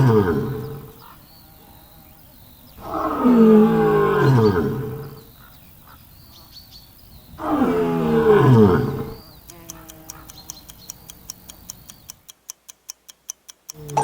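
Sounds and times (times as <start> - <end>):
lion roaring: 0.0 - 2.0, 2.8 - 5.2, 7.4 - 9.2.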